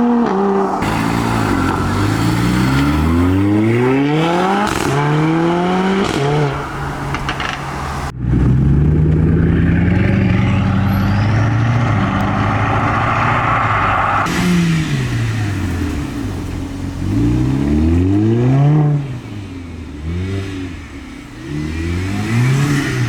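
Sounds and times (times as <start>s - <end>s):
car engine accelerating hard: 0.0s - 23.0s
car engine running steadily: 0.6s - 18.4s.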